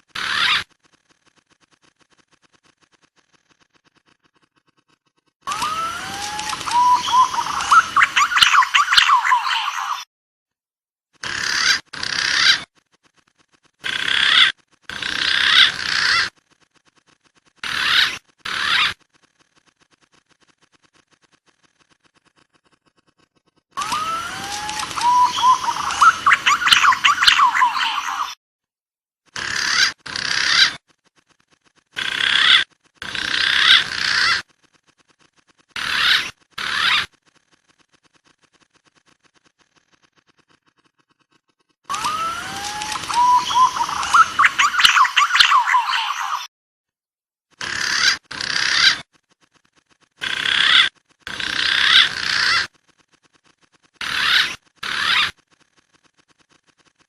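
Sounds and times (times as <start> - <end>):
pigeon rasping calls: 0.1 - 10.1, 11.2 - 19.1, 20.0 - 28.4, 29.3 - 46.5, 47.6 - 55.4
high wavering whistled pigeon calls: 5.5 - 10.1, 23.8 - 28.4, 41.9 - 46.5.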